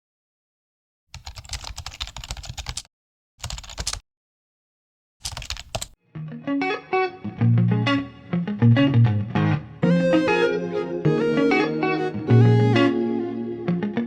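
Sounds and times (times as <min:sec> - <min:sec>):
computer keyboard typing: 0:01.2 - 0:04.0, 0:05.2 - 0:06.0
guitar music: 0:06.0 - 0:14.0.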